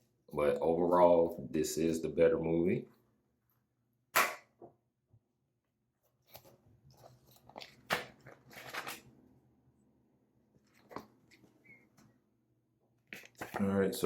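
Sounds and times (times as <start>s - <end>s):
crinkly handling of case: 6.2s - 9.1s, 13.1s - 13.8s.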